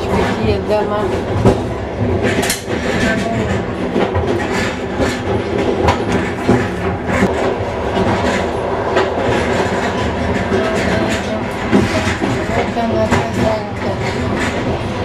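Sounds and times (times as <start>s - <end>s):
train rumble inside carriage: 0.0s - 15.0s.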